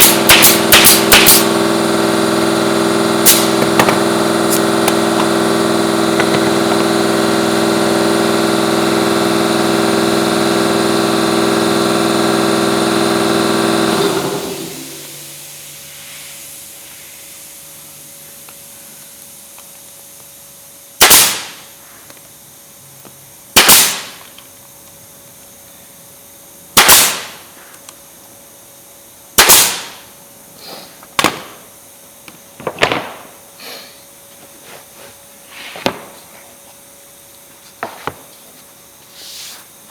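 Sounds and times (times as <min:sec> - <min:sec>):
nail gun firing: 0:00.0 - 0:15.0, 0:21.0 - 0:21.7, 0:23.6 - 0:24.4, 0:26.8 - 0:27.4, 0:29.4 - 0:30.1, 0:31.2 - 0:31.7, 0:32.7 - 0:33.3
air compressor motor running: 0:00.0 - 0:24.0.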